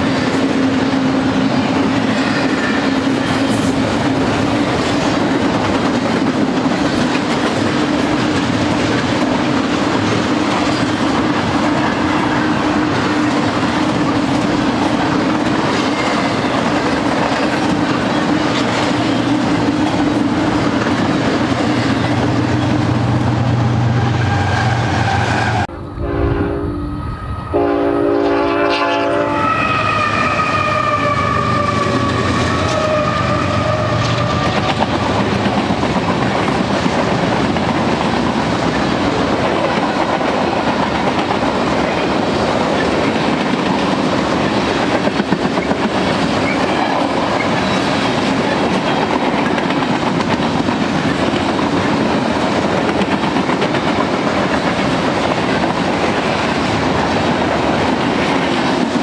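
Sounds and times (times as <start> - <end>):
train wheels clattering on rails: 0.0 - 23.6, 29.9 - 59.0
locomotive horn: 23.7 - 34.8.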